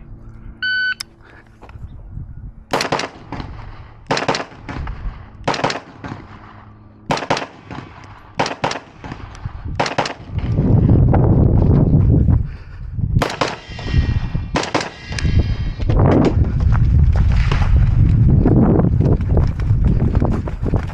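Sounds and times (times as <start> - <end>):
loud low rumbling: 0.0 - 20.9
gunshots in quick pairs: 2.7 - 10.4, 13.2 - 15.2.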